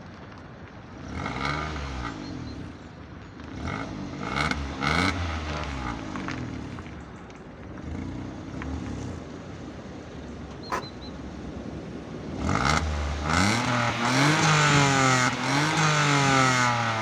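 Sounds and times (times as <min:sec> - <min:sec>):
car engine revving: 0:03.4 - 0:07.0, 0:10.6 - 0:17.0.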